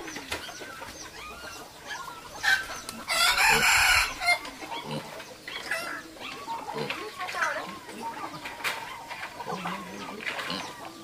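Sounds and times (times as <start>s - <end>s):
birds chirping: 0.0s - 11.0s
rooster crowing: 3.1s - 4.4s.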